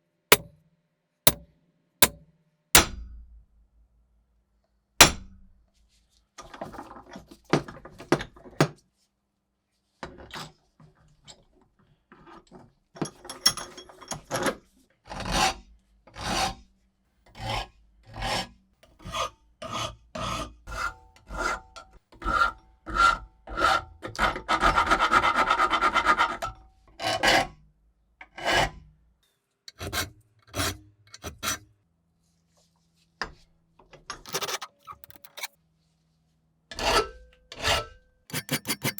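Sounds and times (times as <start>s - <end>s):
metal file rasping: 34.3s - 35.6s, 38.3s - 38.9s.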